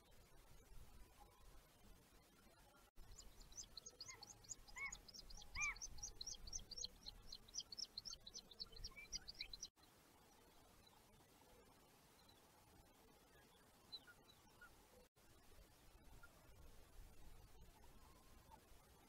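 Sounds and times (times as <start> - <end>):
birds chirping: 3.0 - 9.7
lower arched bird calls: 3.1 - 9.7.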